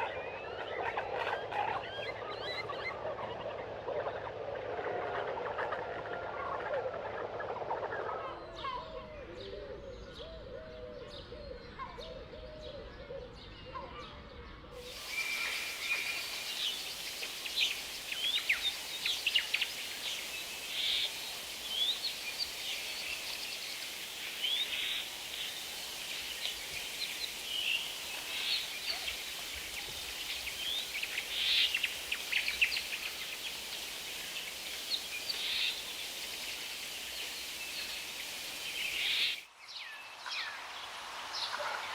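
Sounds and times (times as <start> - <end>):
chorus of high bird chirps: 0.0 - 10.5, 11.2 - 40.5
steady hiss: 14.8 - 41.9.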